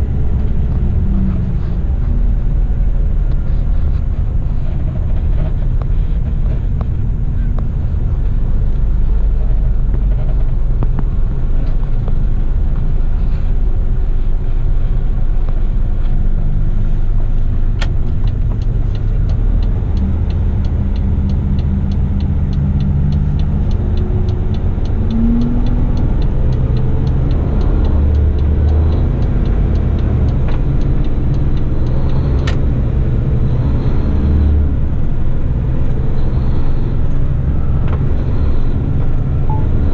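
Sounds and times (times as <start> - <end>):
road noise: 0.0 - 39.9
truck engine running: 0.0 - 39.9
fast even ticking: 18.1 - 33.8.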